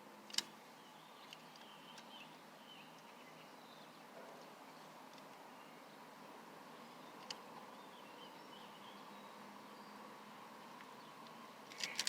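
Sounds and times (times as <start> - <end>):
faint high-pitched bird calls: 0.4 - 6.1.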